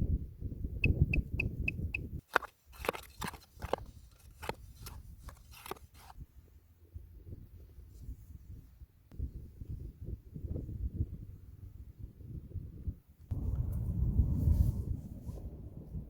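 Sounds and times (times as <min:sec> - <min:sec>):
bird chirping: 0:00.8 - 0:02.1
crunching clicks and rustles: 0:02.2 - 0:06.2
low handling rumble: 0:13.3 - 0:16.0.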